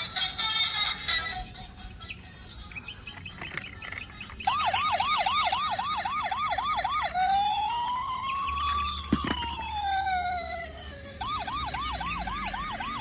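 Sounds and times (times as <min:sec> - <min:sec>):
toy police siren: 0:03.1 - 0:13.0.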